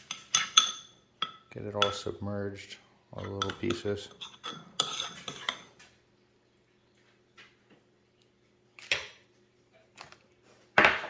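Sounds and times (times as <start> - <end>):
spoon scraping a bowl: 0.0 - 2.0, 3.2 - 5.8.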